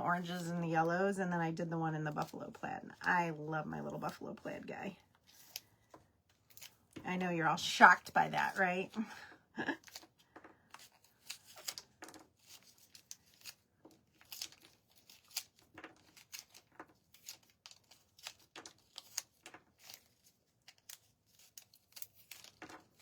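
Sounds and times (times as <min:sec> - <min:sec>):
beads peeling off backing sheet: 0:05.1 - 0:07.0, 0:09.8 - 0:23.0.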